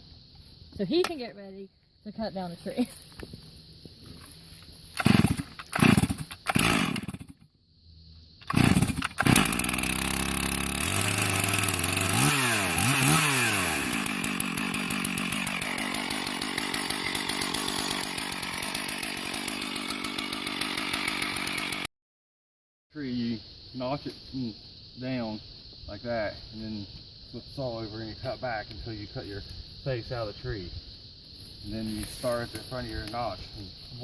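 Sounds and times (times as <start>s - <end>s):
chainsaw engine running: 4.9s - 7.4s, 8.4s - 21.9s
chainsaw starter cord pulls: 4.9s - 7.4s, 8.4s - 21.9s.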